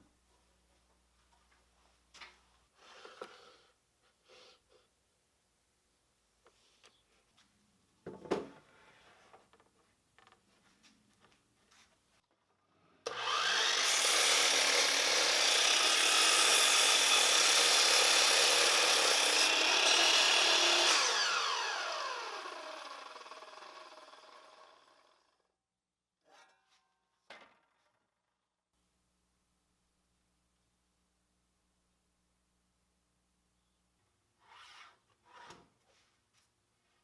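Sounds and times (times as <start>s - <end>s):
electric power saw running: 13.1s - 25.3s.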